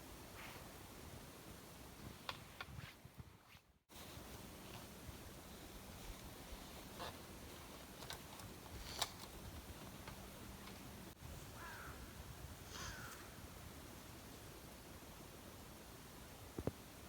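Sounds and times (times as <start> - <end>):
faint hiss: 0.0 - 17.0
crow calling: 11.6 - 13.4.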